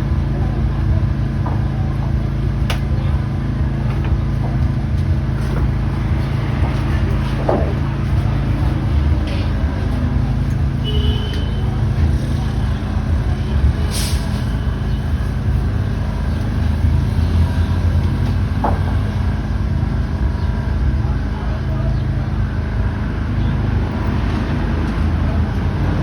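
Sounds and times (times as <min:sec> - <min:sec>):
vehicle engines rumbling: 0:00.0 - 0:26.0
short hiss: 0:13.9 - 0:14.5.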